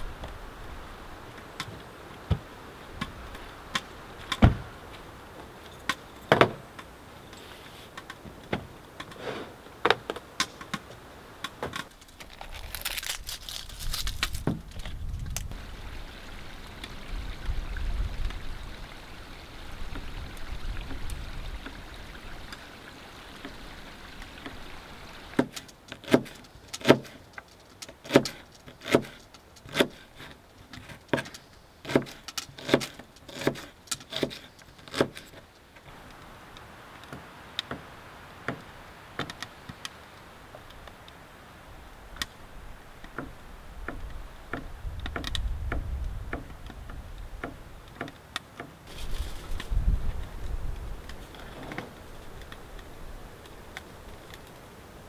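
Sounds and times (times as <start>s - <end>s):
steady hiss: 35.5s - 45.6s.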